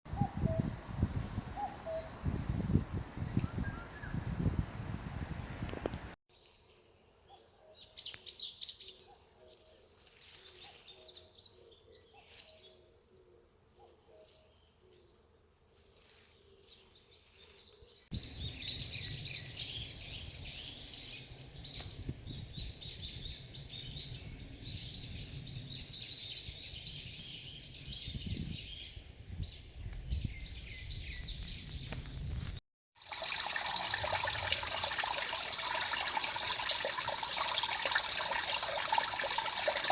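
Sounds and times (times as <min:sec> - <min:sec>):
stream rushing over rocks: 0:33.0 - 0:39.9.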